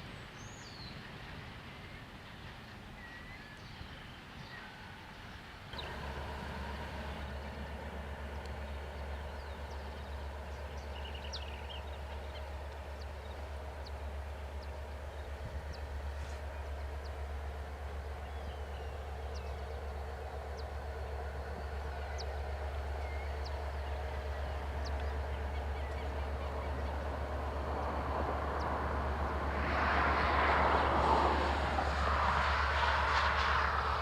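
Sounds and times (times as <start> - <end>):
diesel locomotive rumbling: 0.0 - 34.0.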